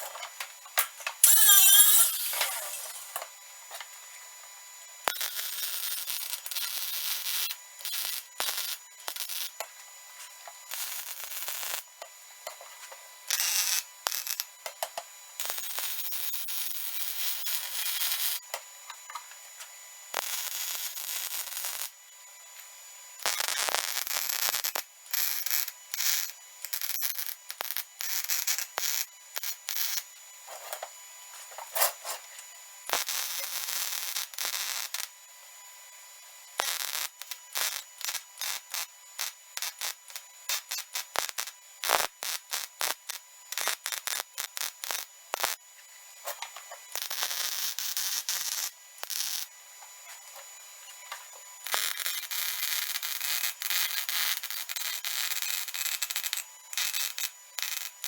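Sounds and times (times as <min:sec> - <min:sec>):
welder arc crackling: 0:00.7 - 0:03.2.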